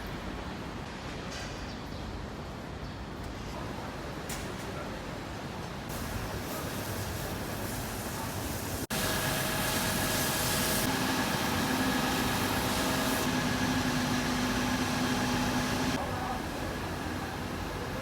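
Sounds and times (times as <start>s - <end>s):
engine humming: 8.9s - 17.9s.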